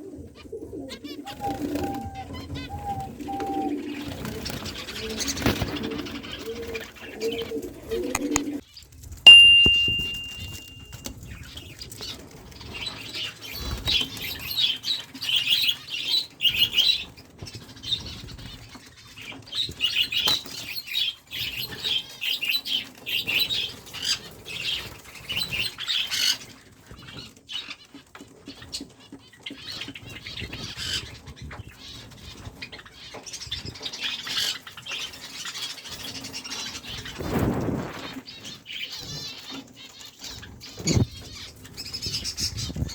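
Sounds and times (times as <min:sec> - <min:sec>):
cage birds chirping: 0:00.0 - 0:42.9
wings fluttering against cages: 0:00.2 - 0:09.2, 0:10.6 - 0:42.9.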